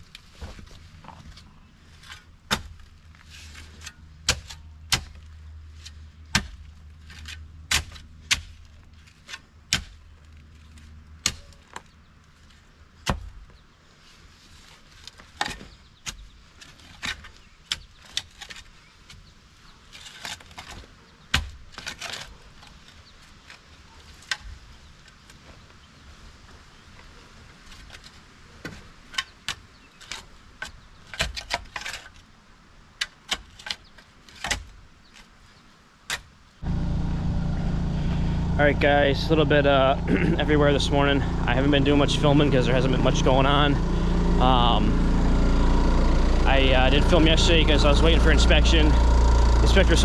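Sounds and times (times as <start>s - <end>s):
shovel striking stony soil: 2.1s - 10.1s
low steady hum: 36.6s - 50.0s.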